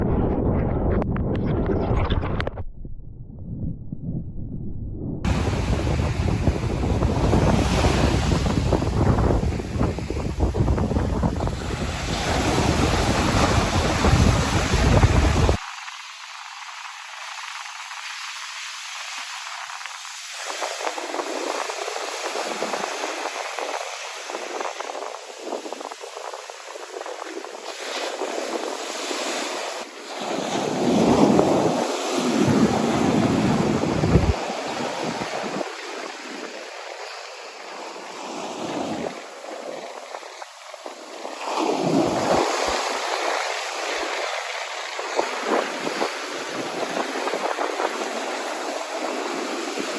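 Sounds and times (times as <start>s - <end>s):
wind buffeting microphone: 0.0s - 15.6s, 20.5s - 49.9s
ocean surf rushing: 5.2s - 49.9s
underwater churning seawater hiss: 5.3s - 49.9s.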